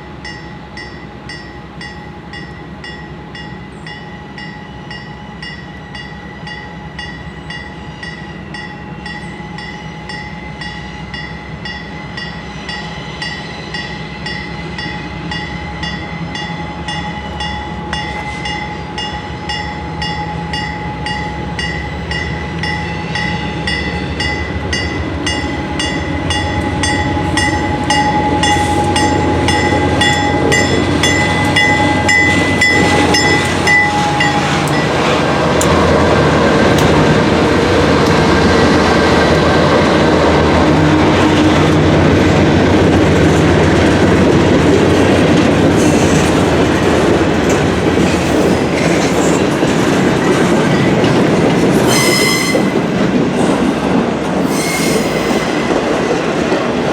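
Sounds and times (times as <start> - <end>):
locomotive whine: 0.0 - 56.9
train wheels clattering over rail joints: 40.8 - 54.5
wheel squeal: 54.4 - 55.5.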